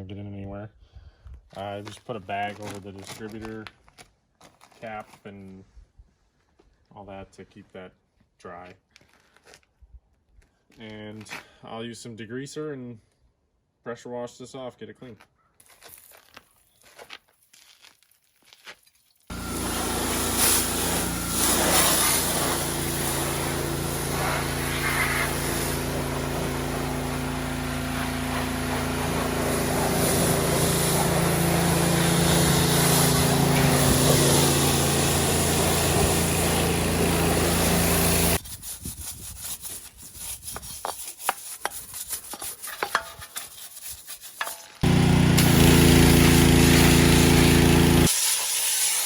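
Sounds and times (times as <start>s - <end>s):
pressure washer spraying: 19.3s - 38.4s, 43.5s - 49.0s.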